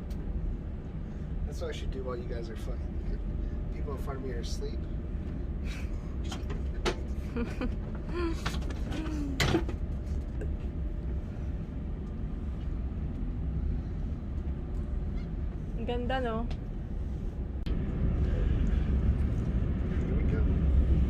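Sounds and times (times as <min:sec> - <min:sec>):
train carriage low hum: 0:00.0 - 0:21.0.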